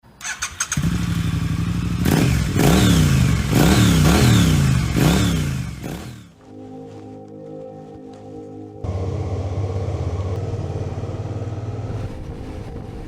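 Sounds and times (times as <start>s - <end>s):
motorcycle engine idling and revving: 0.2s - 6.4s, 8.8s - 13.0s.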